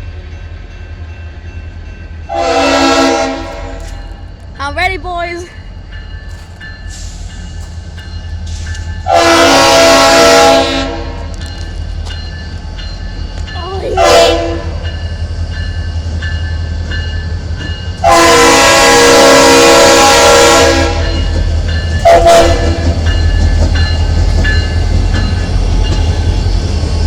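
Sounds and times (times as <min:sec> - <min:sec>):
locomotive horn blast: 0:02.3 - 0:04.0, 0:09.1 - 0:11.3, 0:13.9 - 0:14.8, 0:18.0 - 0:21.2, 0:22.0 - 0:22.8.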